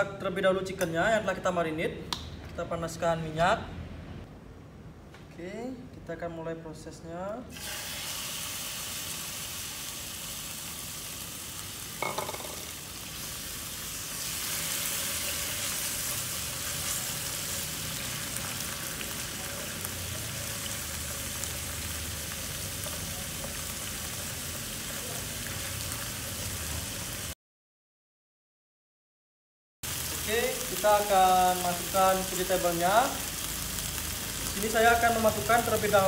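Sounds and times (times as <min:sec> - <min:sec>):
chicken sizzling in hot oil: 0:07.5 - 0:27.4, 0:29.8 - 0:36.0.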